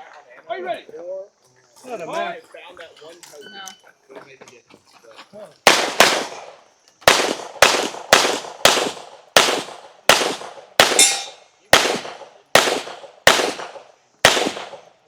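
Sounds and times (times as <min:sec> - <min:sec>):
pistol shots: 0:05.6 - 0:15.0
metallic ring of steel target: 0:10.9 - 0:11.4.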